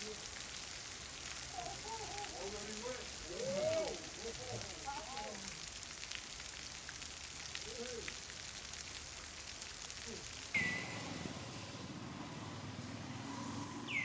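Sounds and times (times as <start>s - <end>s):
raindrops ticking: 0.0s - 11.1s
steady rain hissing: 0.0s - 14.0s.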